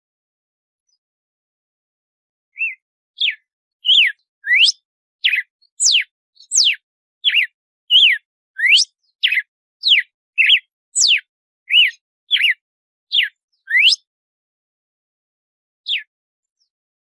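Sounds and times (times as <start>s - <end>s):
bird whistled song: 2.5s - 14.1s, 15.9s - 16.8s.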